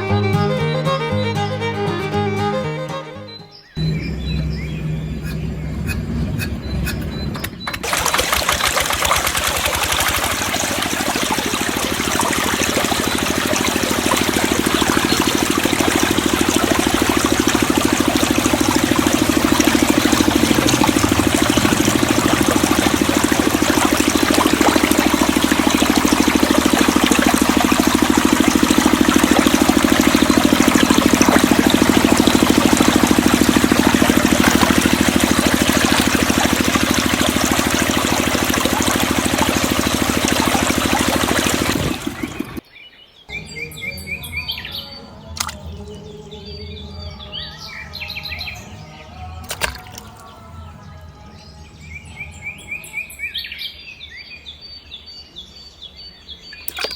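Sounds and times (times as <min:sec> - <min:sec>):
water pump running: 0:03.8 - 0:42.6, 0:49.4 - 0:50.3, 0:56.7 - 0:56.9
water trickling and pouring: 0:07.7 - 0:42.6.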